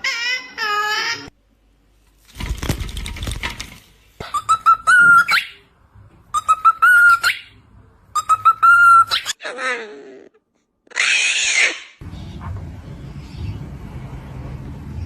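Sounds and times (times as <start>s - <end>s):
rustling: 2.0s - 4.2s
parrot whistling a tune: 4.3s - 5.6s, 6.3s - 7.5s, 8.2s - 9.4s.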